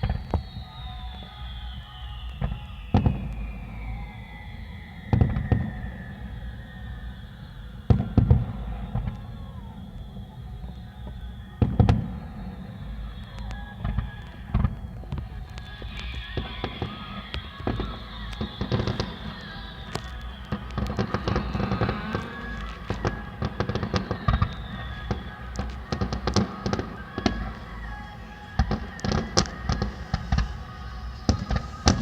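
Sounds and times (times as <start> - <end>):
descending high whistle: 0.0 - 32.0
fireworks bangs: 0.0 - 32.0
low rumble: 0.0 - 32.0.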